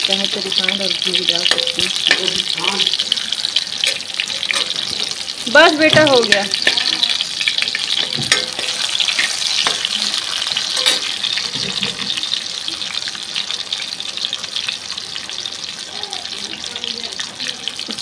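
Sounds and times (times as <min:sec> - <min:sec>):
mangoes sizzling in hot oil: 0:00.0 - 0:18.0
steel ladle knocking on pot: 0:05.9 - 0:07.1, 0:08.0 - 0:09.8.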